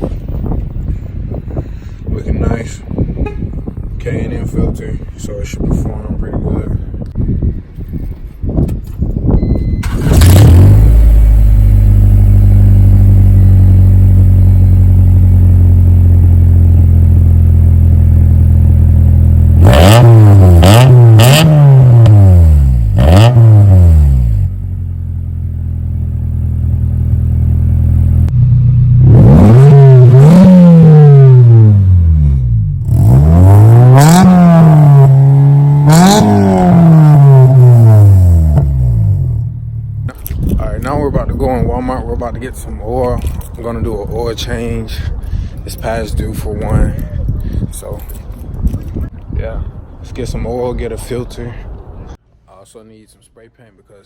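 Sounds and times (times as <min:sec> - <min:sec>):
car engine idling and revving: 0:09.8 - 0:40.4.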